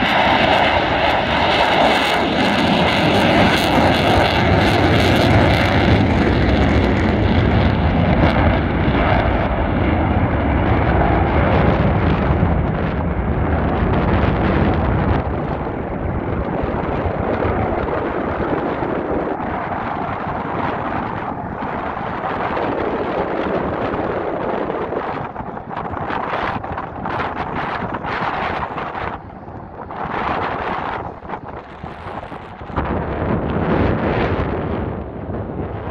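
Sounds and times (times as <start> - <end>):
jet engines roaring: 0.0 - 35.9
low jet rumble: 0.0 - 35.9.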